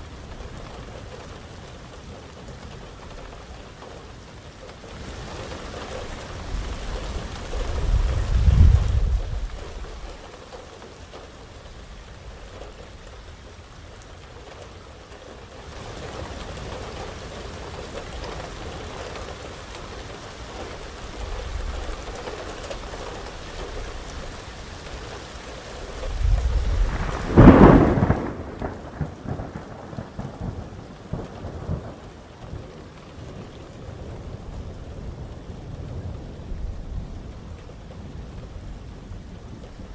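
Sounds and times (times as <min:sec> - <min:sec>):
heavy rain: 0:00.0 - 0:39.9
rolling thunder: 0:06.6 - 0:10.2, 0:25.8 - 0:37.4
sharp thunderclap: 0:25.9 - 0:32.1.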